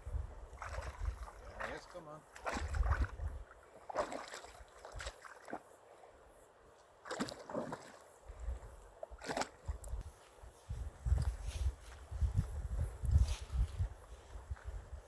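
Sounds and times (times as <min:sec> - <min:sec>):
paddle splashing in water: 0:00.6 - 0:05.6, 0:07.0 - 0:08.0, 0:09.0 - 0:09.8
low microphone rumbles: 0:10.7 - 0:15.0.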